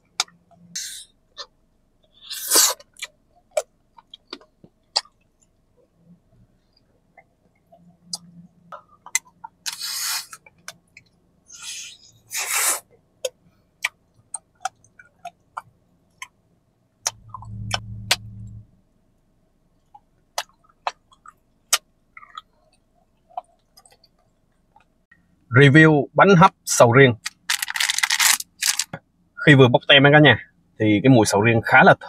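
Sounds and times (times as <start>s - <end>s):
low muffled rumble: 17.0s - 19.0s
biting and chewing wax candy: 27.2s - 29.0s.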